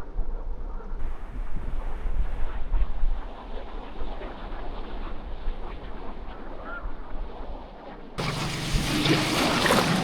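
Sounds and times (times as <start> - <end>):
wind buffeting microphone: 1.0 - 10.0
surf rushing: 8.2 - 10.0.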